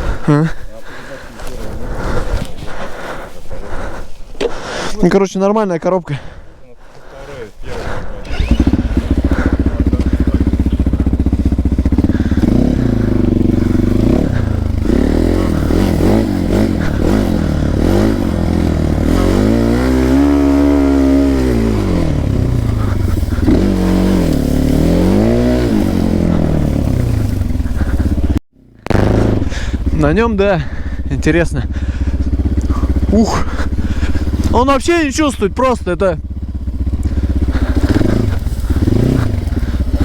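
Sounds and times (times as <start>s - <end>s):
small motorcycle engine revving: 8.2s - 40.0s.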